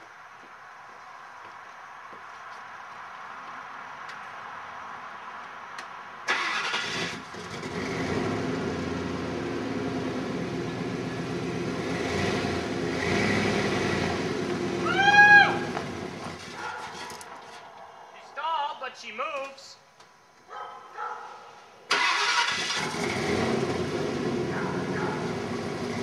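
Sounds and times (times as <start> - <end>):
truck engine cranking and running: 6.3 - 14.8, 21.9 - 26.0.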